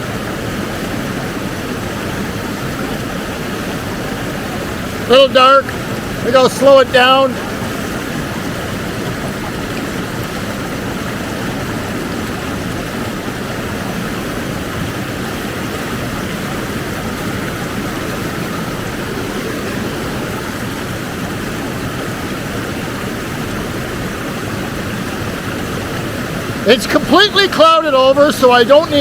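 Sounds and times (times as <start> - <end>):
rushing whitewater: 0.0 - 29.0.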